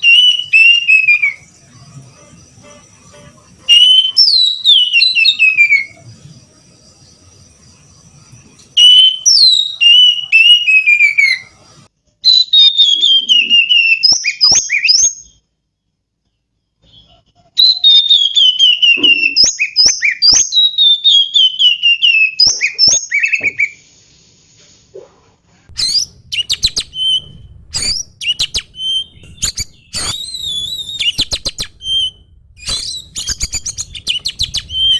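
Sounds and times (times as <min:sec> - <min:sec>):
songbird whistling song: 0:00.0 - 0:15.7, 0:16.3 - 0:23.9, 0:25.7 - 0:34.9.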